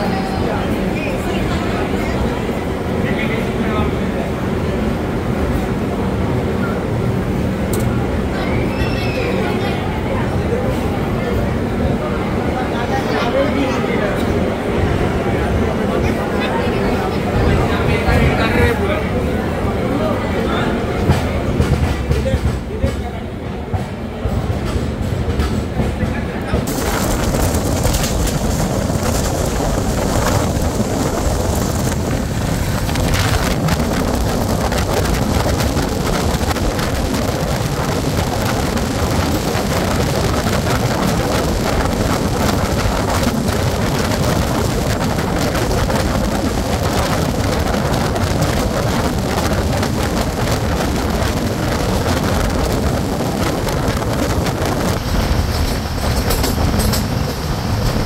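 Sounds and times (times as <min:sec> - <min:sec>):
train rumble and rushing air: 0:00.0 - 0:58.0
wind buffeting microphone: 0:26.5 - 0:58.0.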